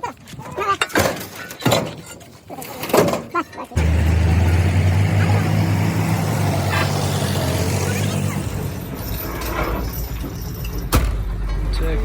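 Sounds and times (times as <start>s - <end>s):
engine humming with rushing noise: 3.8s - 12.0s.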